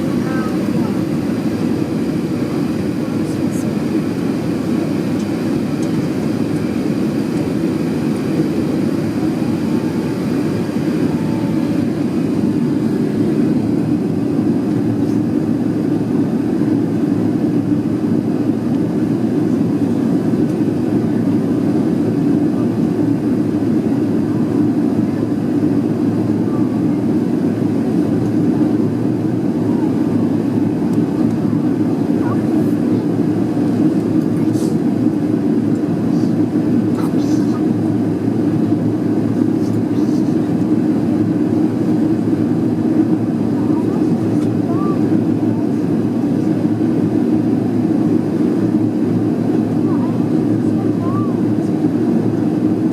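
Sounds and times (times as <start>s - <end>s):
jet engines roaring: 0.0s - 52.9s.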